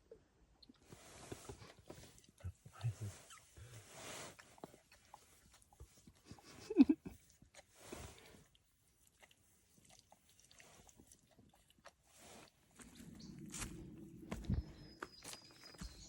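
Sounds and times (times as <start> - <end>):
soft rustles: 0.8 - 6.2.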